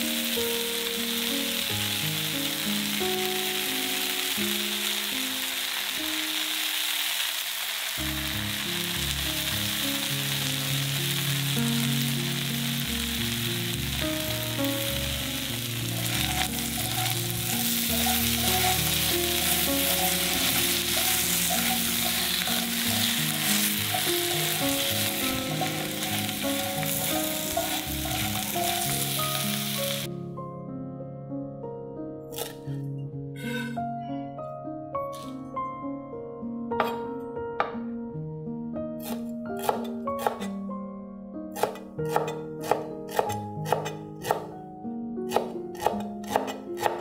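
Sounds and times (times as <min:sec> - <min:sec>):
background music: 0:00.0 - 0:07.3, 0:07.9 - 0:47.0
food sizzling in a frying pan: 0:00.0 - 0:30.1.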